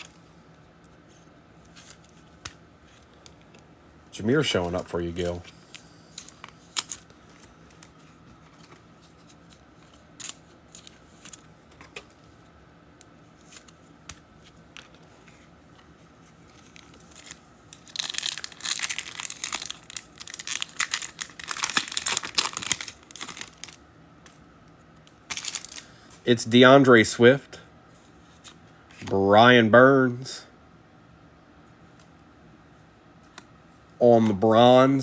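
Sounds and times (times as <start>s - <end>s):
foil wrapper tearing and crinkling: 16.5s - 23.8s, 25.3s - 25.9s.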